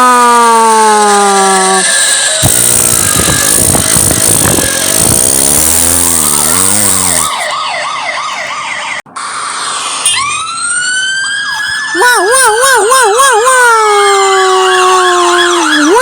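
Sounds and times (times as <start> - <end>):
police siren yelping: 0.0 - 16.0
wavering engine drone: 1.2 - 7.7
rising siren wail: 6.6 - 16.0.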